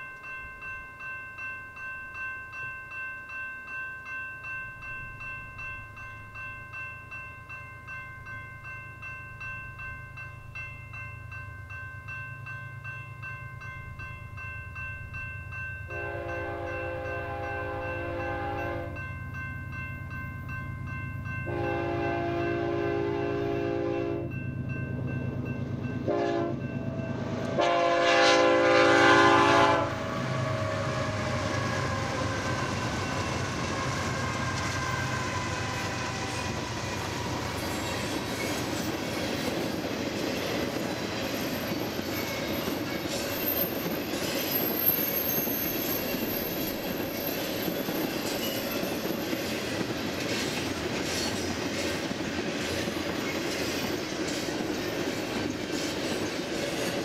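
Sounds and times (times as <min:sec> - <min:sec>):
train cars rumbling and clacking: 0:13.8 - 0:57.0
train horn blasts: 0:15.9 - 0:19.0, 0:21.5 - 0:24.3, 0:26.0 - 0:26.8, 0:27.4 - 0:31.7
locomotive engine passing: 0:20.8 - 0:57.0.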